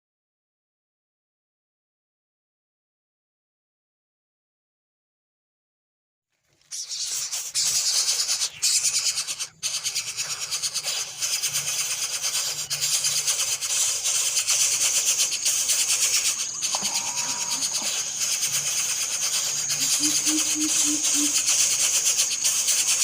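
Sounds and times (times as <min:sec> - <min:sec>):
bird chicks begging chatter: 0:06.8 - 0:23.0.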